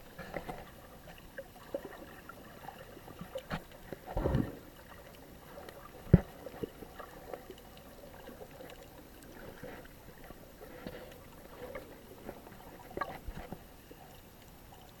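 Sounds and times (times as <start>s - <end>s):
faint wash of water: 0.0s - 15.0s.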